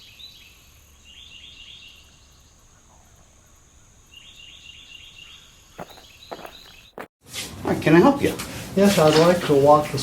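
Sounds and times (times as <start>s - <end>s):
songbird chirping: 0.0s - 7.1s.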